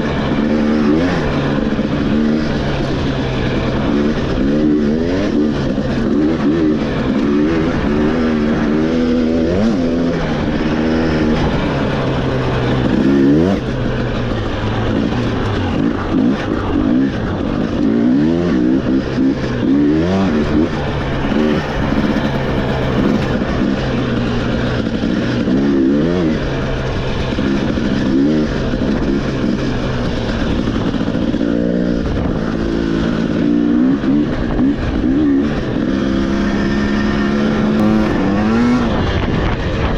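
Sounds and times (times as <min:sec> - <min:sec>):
off-road motorcycle engine: 0:00.0 - 0:39.9.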